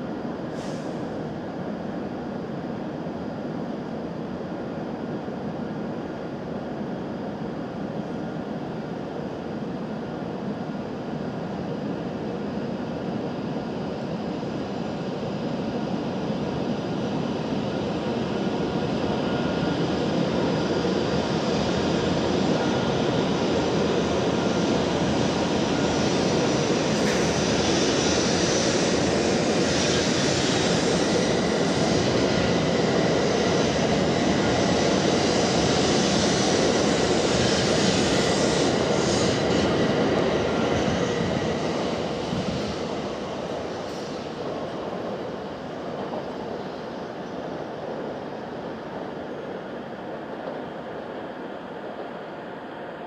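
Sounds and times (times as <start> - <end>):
train running past: 0.0 - 53.0.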